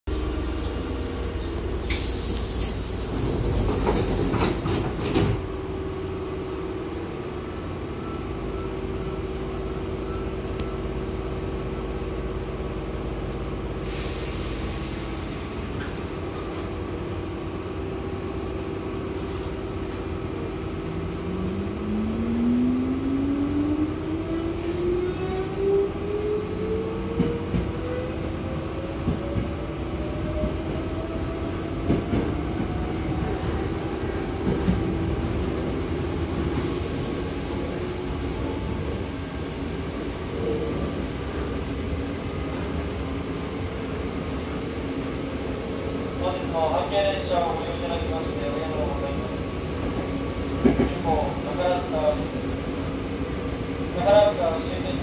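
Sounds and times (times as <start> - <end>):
train doors closing with air hiss: 1.8 - 5.5, 13.8 - 16.7, 36.4 - 38.9.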